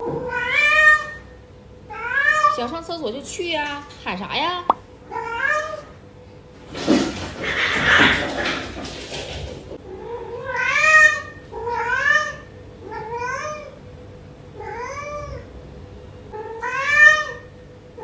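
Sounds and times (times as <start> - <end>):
cat meowing: 5.1 - 6.0.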